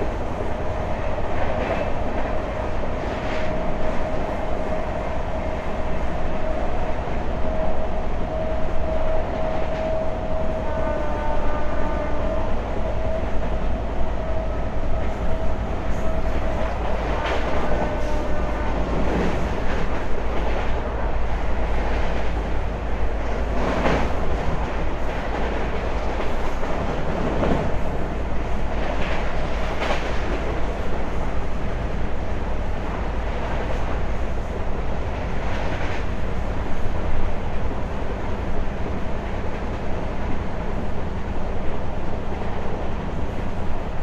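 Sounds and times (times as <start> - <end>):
train wheels rumbling on rail: 0.0 - 44.0.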